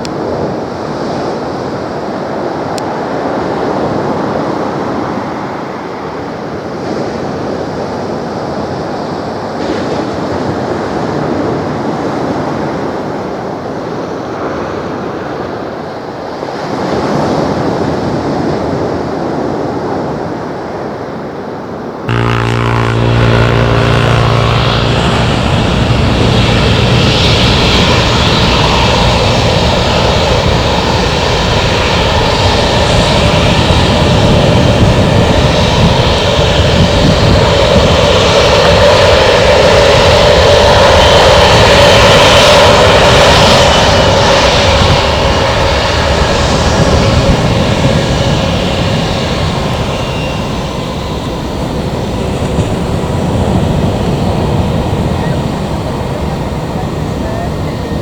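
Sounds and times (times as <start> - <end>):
jet airliner engines rushing: 22.1 - 58.0.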